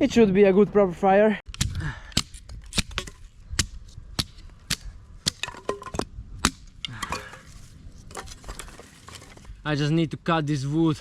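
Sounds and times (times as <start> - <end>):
sticks breaking by hand: 1.5 - 9.3.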